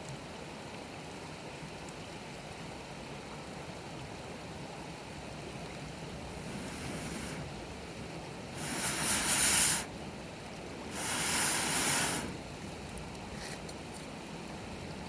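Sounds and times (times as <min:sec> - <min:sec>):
fire crackling: 0:05.7 - 0:07.8, 0:08.5 - 0:09.9, 0:10.7 - 0:12.6
air blown onto fire hissing: 0:05.7 - 0:12.8.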